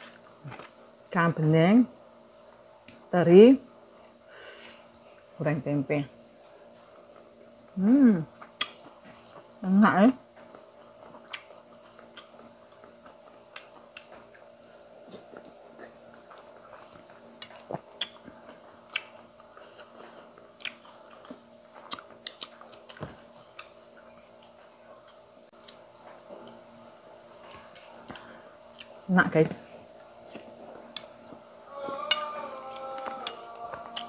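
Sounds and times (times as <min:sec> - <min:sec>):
faint hum: 0:00.0 - 0:34.0
person chewing with mouth clicks: 0:08.4 - 0:09.4, 0:10.4 - 0:29.1, 0:30.0 - 0:34.0.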